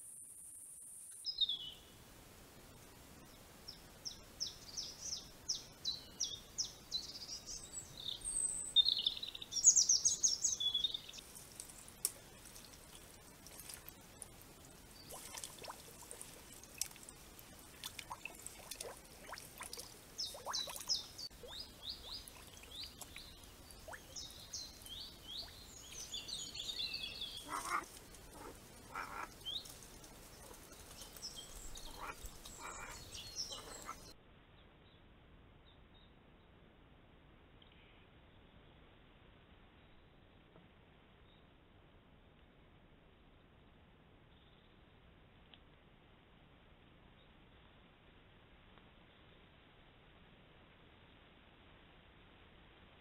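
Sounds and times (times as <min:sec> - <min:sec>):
small birds singing: 0:00.9 - 0:02.0, 0:03.2 - 0:36.2
faint clicks and ticks: 0:11.2 - 0:24.0.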